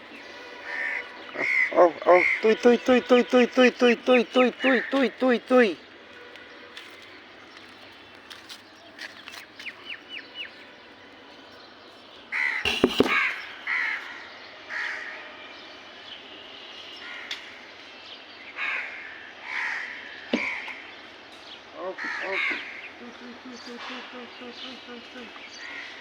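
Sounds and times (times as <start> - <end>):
crows cawing: 0.0 - 5.8, 12.3 - 15.2, 17.0 - 17.6, 18.6 - 20.9, 21.8 - 23.1, 24.8 - 26.0
loud sharp knocks: 12.7 - 13.4.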